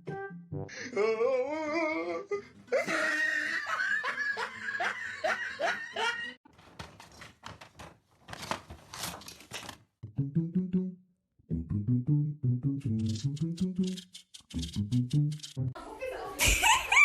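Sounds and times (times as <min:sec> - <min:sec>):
person laughing: 0:02.7 - 0:06.4, 0:16.4 - 0:17.0.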